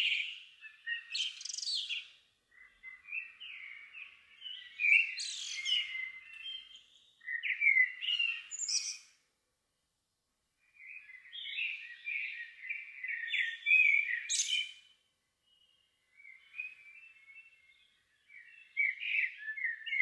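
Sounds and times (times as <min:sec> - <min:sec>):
songbirds singing: 0:00.0 - 0:09.3, 0:10.6 - 0:20.0.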